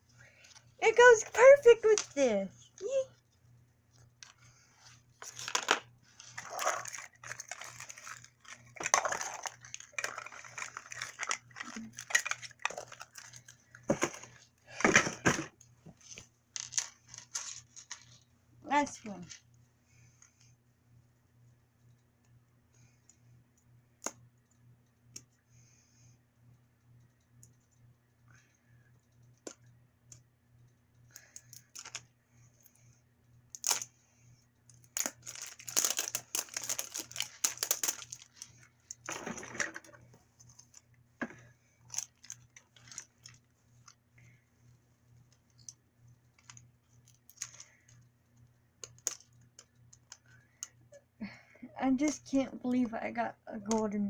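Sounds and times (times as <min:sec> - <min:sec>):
faint low hum: 0:00.0 - 0:54.0
packaging crinkling and tearing: 0:05.2 - 0:14.4, 0:35.0 - 0:39.9.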